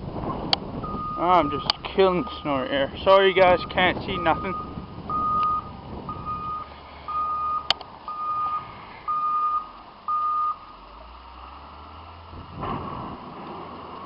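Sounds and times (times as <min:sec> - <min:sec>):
engine droning: 0:00.0 - 0:14.0
reversing alarm beeps: 0:00.8 - 0:02.5, 0:03.5 - 0:10.7
rush of noise: 0:12.2 - 0:14.0.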